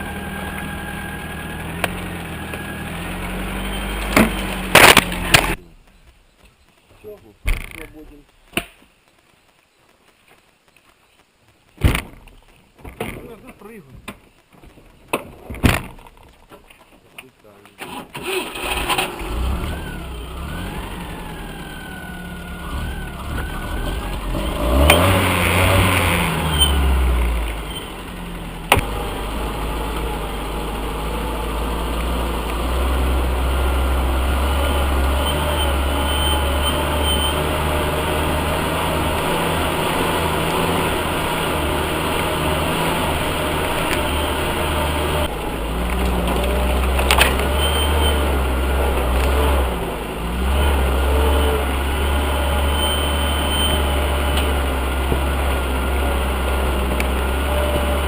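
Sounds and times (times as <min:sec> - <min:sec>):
car engine labouring in mud: 0:00.0 - 0:05.7, 0:18.0 - 0:58.0.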